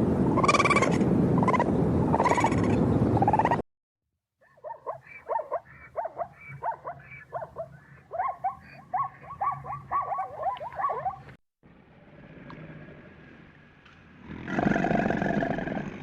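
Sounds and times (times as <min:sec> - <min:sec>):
high yelping animal calls: 0:00.4 - 0:03.6, 0:04.4 - 0:11.3.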